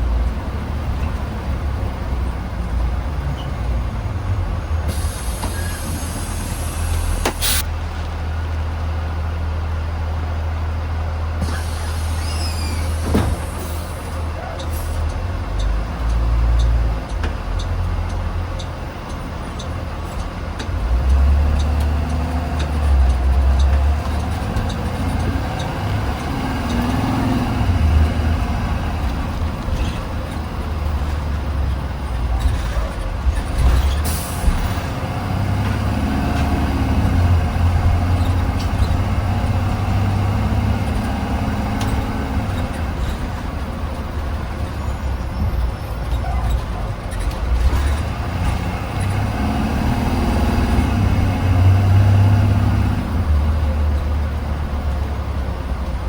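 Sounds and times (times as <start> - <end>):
bus engine and road rumble: 0.0 - 56.0
air hiss: 4.9 - 7.6.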